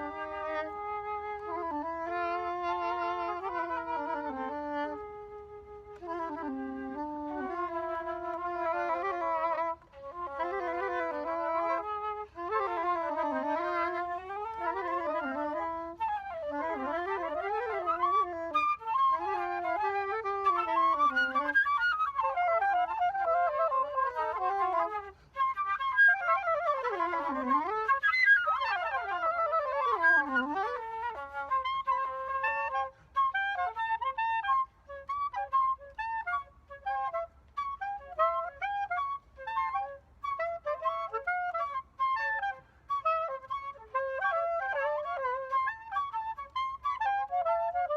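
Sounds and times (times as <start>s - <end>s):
flute-like wind instruments duet: 0.0s - 47.9s.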